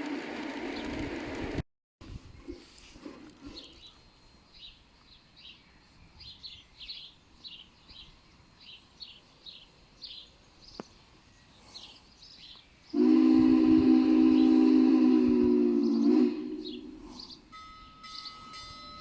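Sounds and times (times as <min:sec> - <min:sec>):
faint outdoor background noise: 0:00.0 - 0:19.0
small bird chirping: 0:03.5 - 0:13.0.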